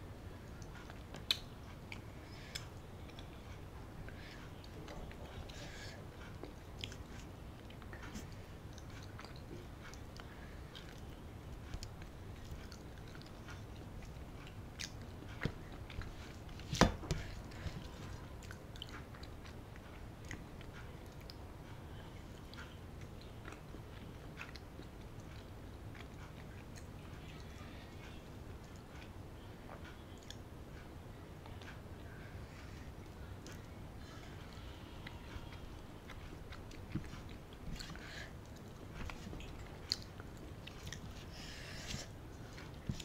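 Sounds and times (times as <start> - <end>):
person chewing: 0.5 - 29.1, 34.4 - 43.0.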